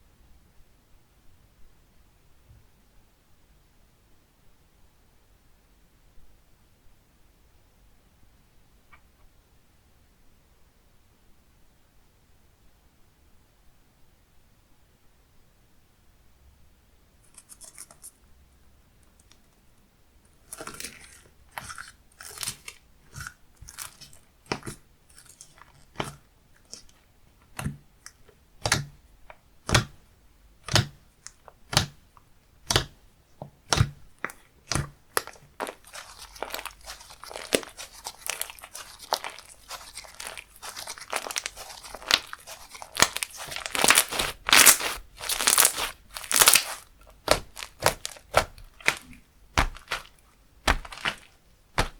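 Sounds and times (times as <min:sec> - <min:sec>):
slime popping and crackling: 0:20.5 - 0:26.9, 0:33.6 - 0:51.9.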